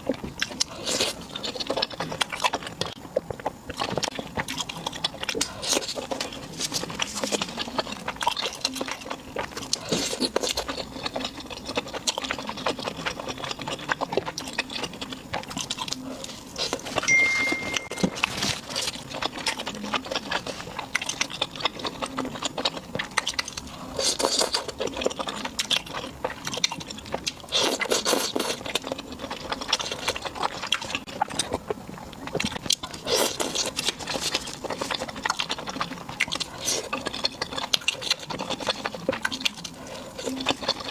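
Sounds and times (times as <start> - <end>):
person chewing and smacking: 0.0 - 40.9.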